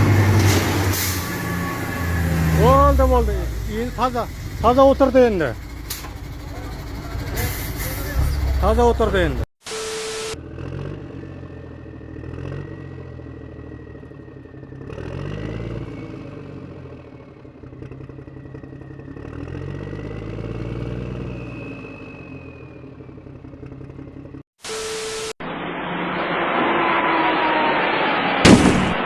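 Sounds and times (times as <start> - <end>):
engine revving: 0.0 - 9.5, 10.4 - 29.0
thin high whine: 24.6 - 29.0.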